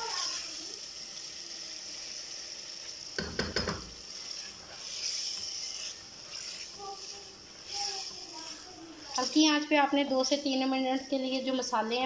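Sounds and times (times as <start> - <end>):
food sizzling in a pot: 0.0 - 12.0
spoon knocking and scraping pot: 3.1 - 6.8.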